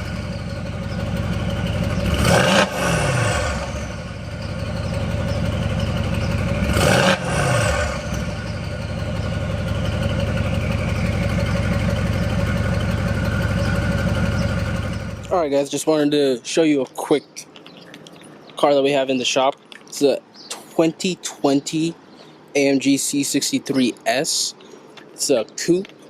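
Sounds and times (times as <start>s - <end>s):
car engine idling: 0.0s - 15.5s
engine throttle blips: 0.0s - 15.5s.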